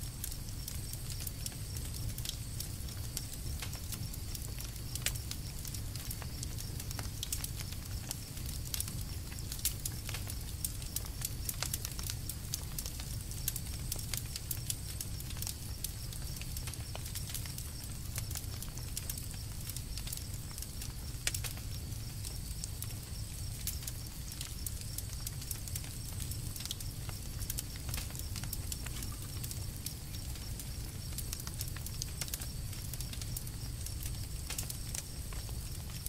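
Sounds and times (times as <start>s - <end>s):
campfire crackling: 0.0s - 36.0s.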